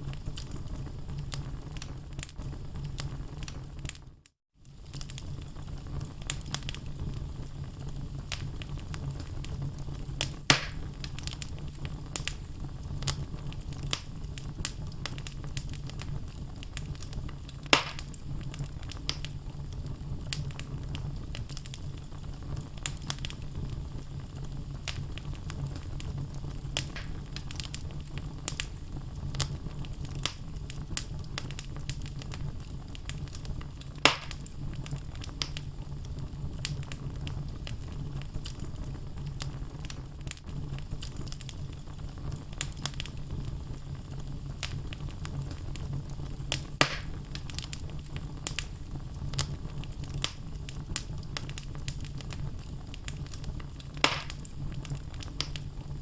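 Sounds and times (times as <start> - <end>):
loud pops from fire: 0.0 - 4.0, 4.6 - 56.0
low rumble of flame: 0.0 - 56.0
logs crackling: 10.2 - 12.4, 16.6 - 19.3, 26.6 - 30.4, 34.0 - 35.6, 46.5 - 55.6.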